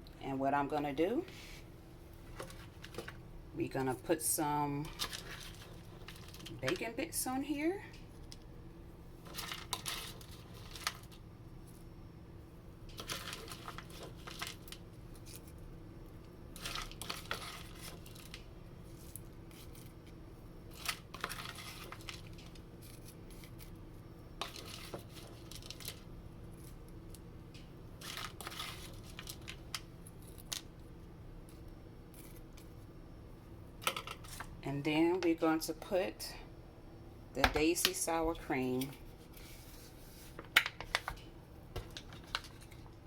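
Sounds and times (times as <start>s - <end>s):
faint steady hum: 0.0s - 43.0s
bacon bits rattling in container: 4.9s - 6.8s, 9.2s - 11.2s, 12.9s - 15.3s, 16.5s - 19.9s, 20.7s - 23.7s, 24.4s - 26.0s, 28.0s - 30.7s.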